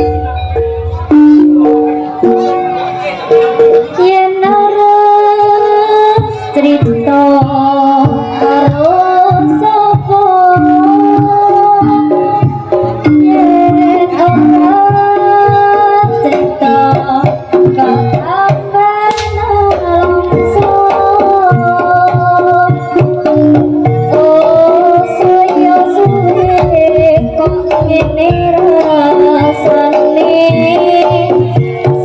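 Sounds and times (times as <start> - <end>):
loud held melody: 0.0 - 32.0
hand drums beat: 0.8 - 32.0.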